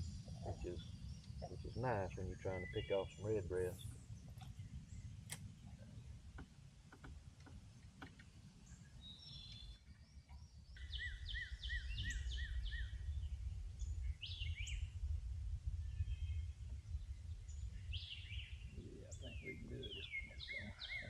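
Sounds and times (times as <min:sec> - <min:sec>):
low rumble: 0:00.0 - 0:06.7, 0:11.5 - 0:21.0
songbird singing: 0:00.0 - 0:21.0.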